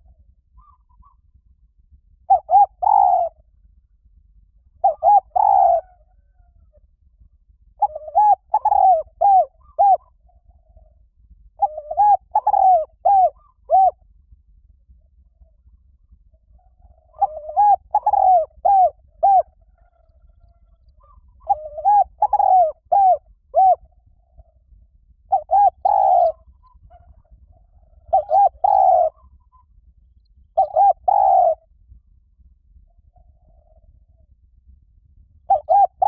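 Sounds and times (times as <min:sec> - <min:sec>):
dove cooing: 0:00.0 - 0:01.3, 0:02.2 - 0:03.5, 0:04.7 - 0:06.9, 0:07.7 - 0:14.1, 0:15.2 - 0:29.8, 0:30.6 - 0:31.7, 0:33.0 - 0:34.3, 0:35.5 - 0:36.0.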